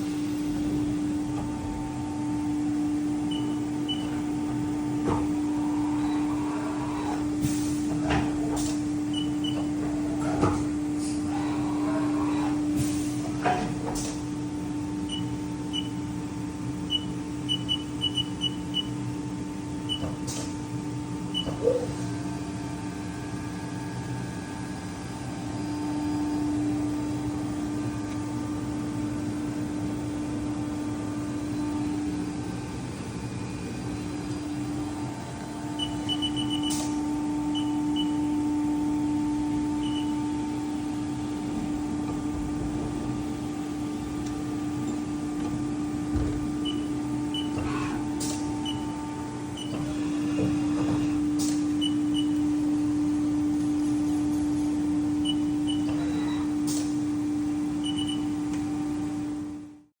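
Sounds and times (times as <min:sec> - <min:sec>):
milling machine humming: 0:00.0 - 0:16.3, 0:33.3 - 0:59.1.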